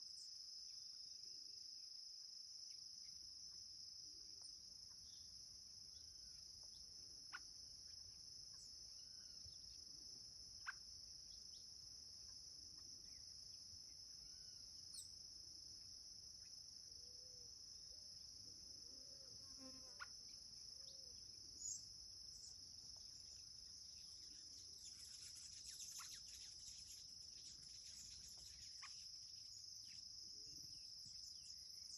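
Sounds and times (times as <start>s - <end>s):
high-pitched insect chorus: 0.0s - 31.9s
soft bird calls: 24.0s - 30.0s.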